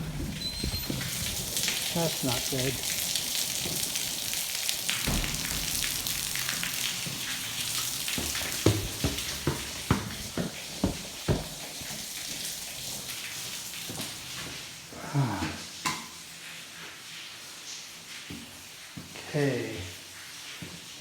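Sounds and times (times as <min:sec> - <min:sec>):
water splashing onto floor: 0:00.0 - 0:21.0
sharp knocks: 0:04.9 - 0:11.6.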